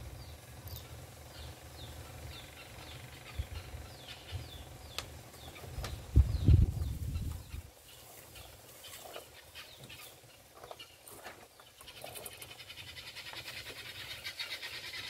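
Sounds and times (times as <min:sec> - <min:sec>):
bird trilling: 0:00.0 - 0:07.7, 0:11.7 - 0:15.0.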